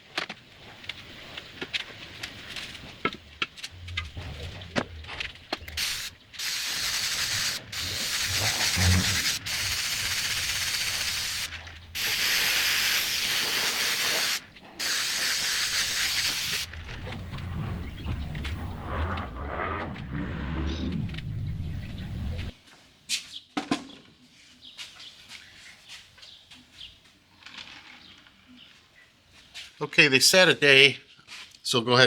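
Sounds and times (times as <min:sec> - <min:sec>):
paint spray gun hissing: 0:05.6 - 0:17.4.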